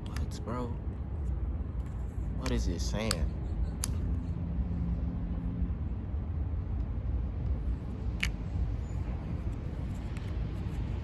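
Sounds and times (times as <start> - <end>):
plastic bottle cap click: 3.8 - 4.0.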